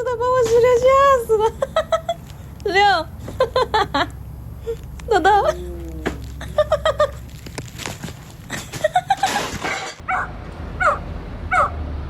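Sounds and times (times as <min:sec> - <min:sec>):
dog yipping: 0:10.1 - 0:11.8.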